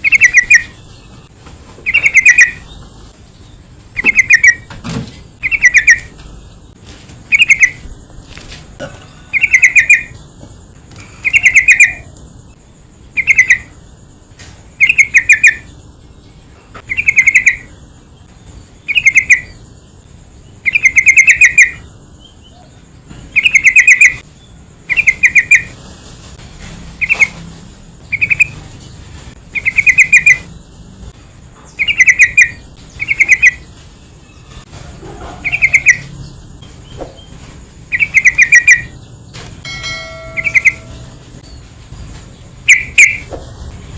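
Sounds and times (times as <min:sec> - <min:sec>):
bird calling bubbling chirps: 0:04.0 - 0:04.6, 0:05.4 - 0:06.1, 0:09.3 - 0:10.1, 0:11.2 - 0:12.1, 0:13.2 - 0:13.7, 0:28.1 - 0:28.6, 0:31.8 - 0:33.6, 0:37.9 - 0:39.0.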